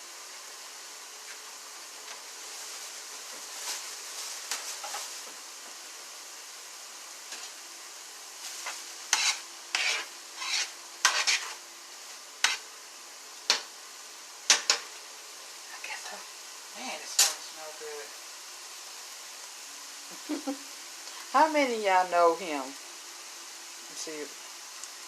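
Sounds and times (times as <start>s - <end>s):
faint sizzle: 0.0s - 25.0s
utensil scraping a pan: 8.6s - 11.6s, 12.4s - 12.6s.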